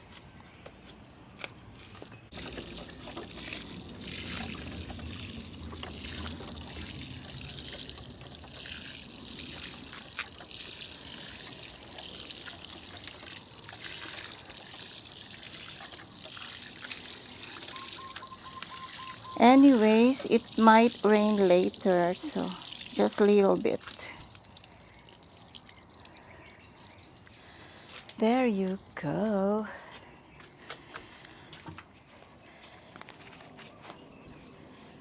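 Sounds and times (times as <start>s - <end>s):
water pouring onto soil: 2.3s - 26.9s.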